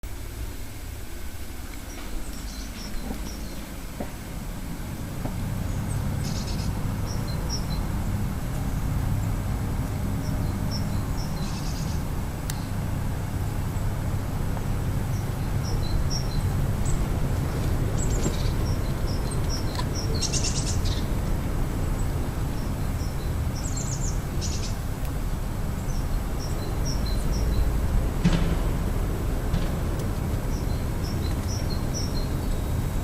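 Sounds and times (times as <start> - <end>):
small birds chirping: 1.8 - 4.2, 5.3 - 14.1, 14.8 - 28.4, 30.0 - 33.0
low rumble: 25.2 - 33.0.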